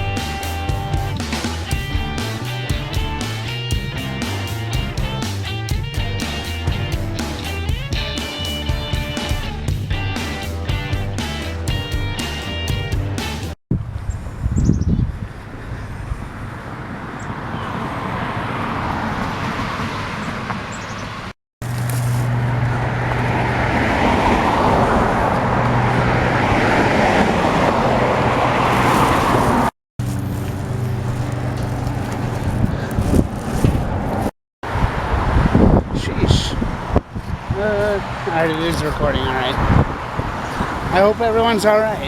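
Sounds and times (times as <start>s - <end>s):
cars passing: 0.0s - 42.0s
low engine hum: 13.8s - 40.9s.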